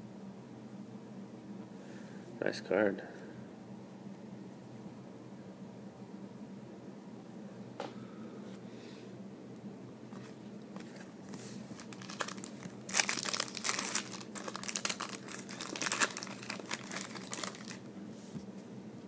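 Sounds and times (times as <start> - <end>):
card pack wrapper tearing: 11.7 - 17.8.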